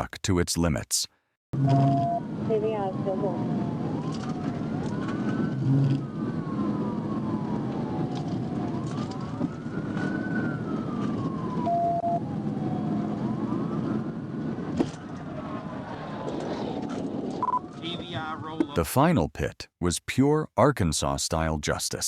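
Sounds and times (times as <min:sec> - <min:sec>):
police siren wailing: 0:01.6 - 0:18.2
car engine and road noise: 0:01.6 - 0:18.7.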